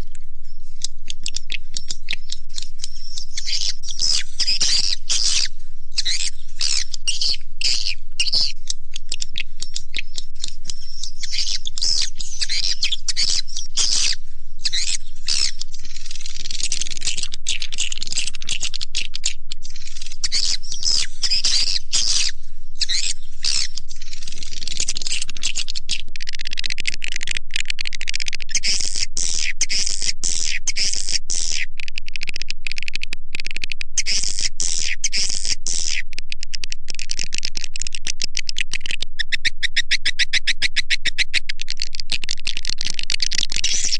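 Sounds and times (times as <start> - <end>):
steady low hum: 0.0 - 26.3
swiftlet chirps and twitters: 0.8 - 26.0.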